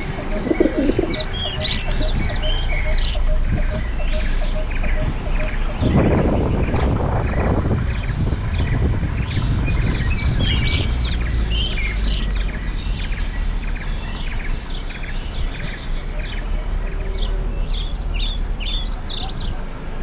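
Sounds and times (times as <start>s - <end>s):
steady low rumble: 0.0s - 13.7s
birds chirping: 0.0s - 20.0s.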